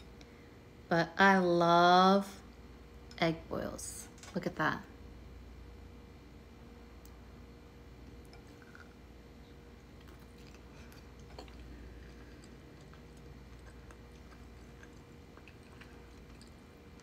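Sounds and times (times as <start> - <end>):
person chewing soft egg: 8.1 - 17.0.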